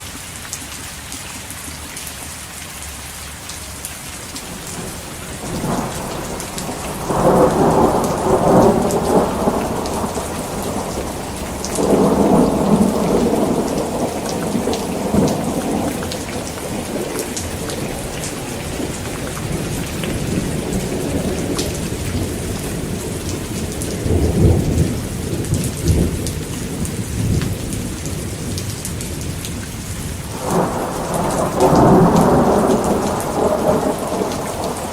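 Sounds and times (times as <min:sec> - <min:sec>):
heavy rain falling: 0:00.0 - 0:34.9
thunder rumbling: 0:04.4 - 0:34.9.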